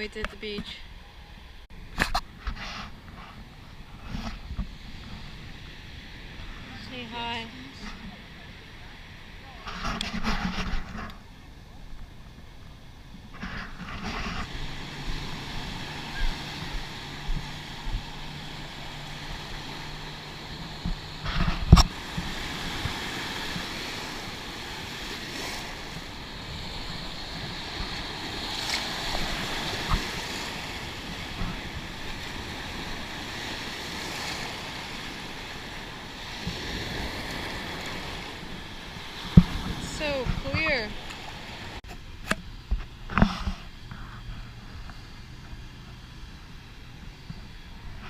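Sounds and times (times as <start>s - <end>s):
low hum: 0.0s - 36.2s
ocean surf on beach: 0.0s - 48.0s
wind on microphone: 0.0s - 48.0s.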